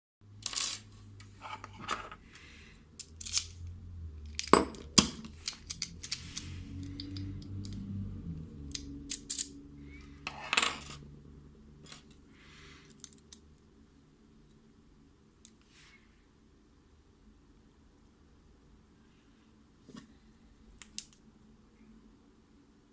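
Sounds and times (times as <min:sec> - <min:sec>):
lock picks clicking and scraping: 0:03.0 - 0:07.8, 0:08.7 - 0:10.4, 0:12.8 - 0:13.4.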